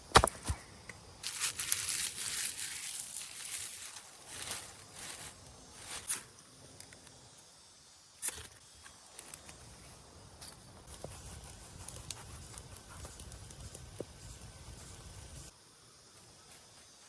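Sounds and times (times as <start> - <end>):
rustling and crackling: 1.2 - 6.2
scattered ticks: 10.9 - 15.5.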